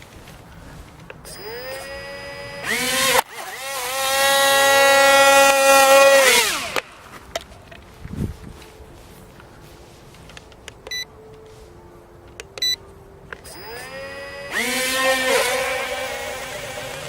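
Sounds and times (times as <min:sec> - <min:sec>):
electric motors whining: 0:01.2 - 0:06.9, 0:13.4 - 0:17.0.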